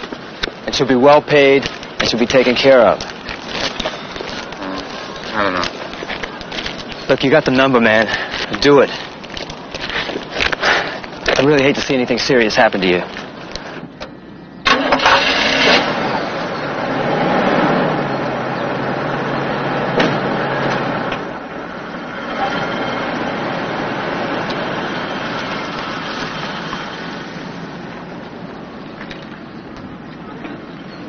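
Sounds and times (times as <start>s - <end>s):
car engine starting and running: 14.4s - 28.8s.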